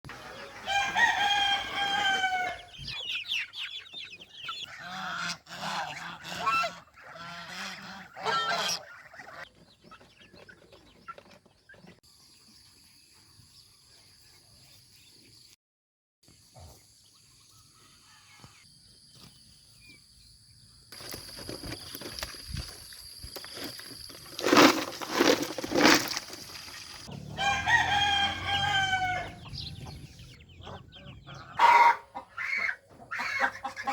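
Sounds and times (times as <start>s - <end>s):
chickens clucking: 0.1s - 12.0s, 23.6s - 33.9s
rooster crowing: 0.4s - 2.7s, 27.1s - 29.9s.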